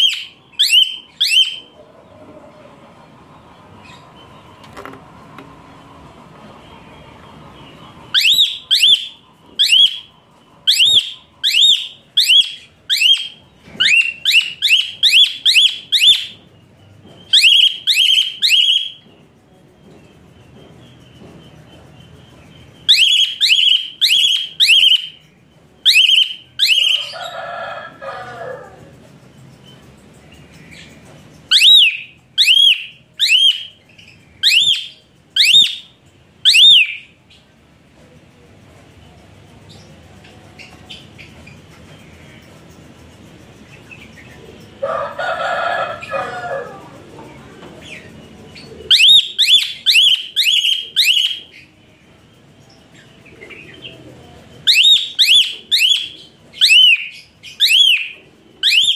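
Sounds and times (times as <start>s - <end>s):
bird whistling upward notes: 0.0s - 1.8s, 8.0s - 16.4s, 17.2s - 19.0s, 22.7s - 27.6s, 31.5s - 33.8s, 34.4s - 37.1s, 48.8s - 51.6s, 54.6s - 58.9s
lower warbling bird call: 0.0s - 1.8s, 6.7s - 16.4s, 31.5s - 33.8s, 48.6s - 51.7s, 53.4s - 58.9s.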